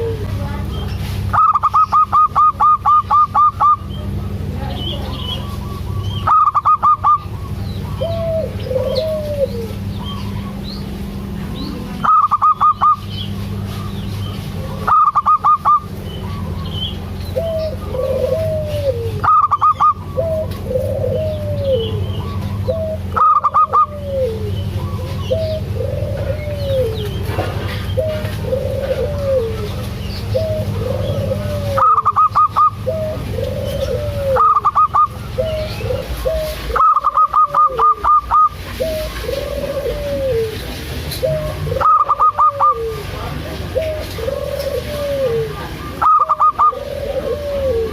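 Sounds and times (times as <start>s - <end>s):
dove staccato coos: 0.0s - 47.9s
steady low hum: 0.0s - 47.9s
soft curved coos: 5.4s - 10.6s, 17.3s - 47.9s.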